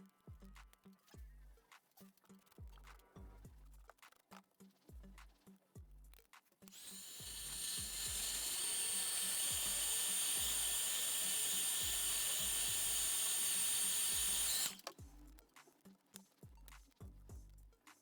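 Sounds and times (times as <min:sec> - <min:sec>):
music with regular beat: 0:00.0 - 0:08.5, 0:14.1 - 0:18.0
rotary tool whining: 0:06.7 - 0:15.0.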